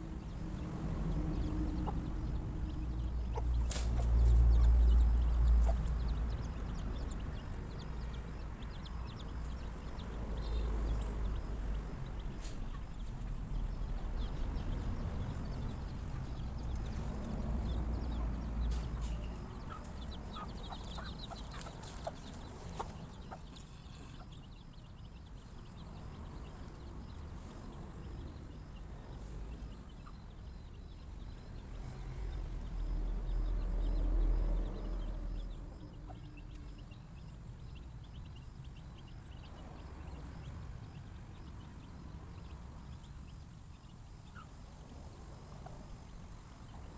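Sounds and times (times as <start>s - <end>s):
chickens clucking: 0.4s - 10.1s, 10.7s - 13.4s, 15.3s - 24.8s, 44.2s - 46.9s.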